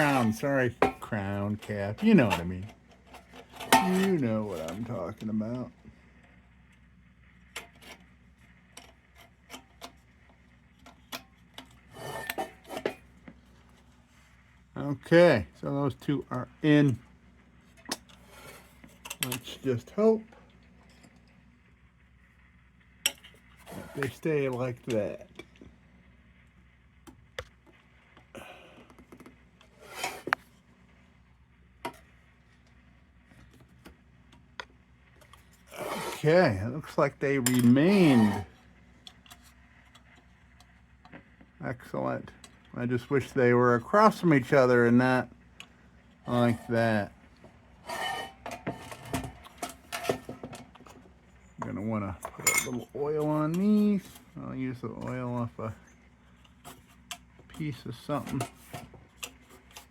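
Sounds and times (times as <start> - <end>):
metal scraping rub: 0.0 - 5.0, 11.8 - 13.0, 18.1 - 19.0, 23.6 - 24.5, 29.7 - 30.5, 35.6 - 36.5, 37.6 - 38.6, 46.2 - 54.4.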